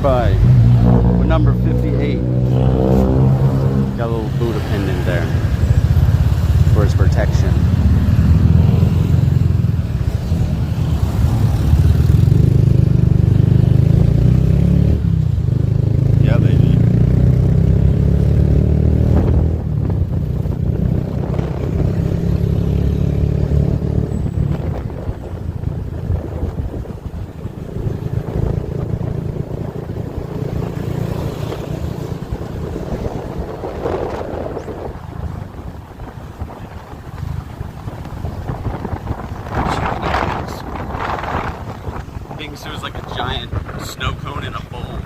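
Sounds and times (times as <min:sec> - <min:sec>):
wind noise on microphone: 0:18.5 - 0:45.0.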